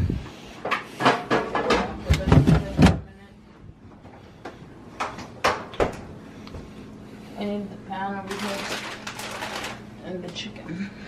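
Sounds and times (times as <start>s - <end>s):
kitchen knocks and thuds: 1.0s - 3.1s.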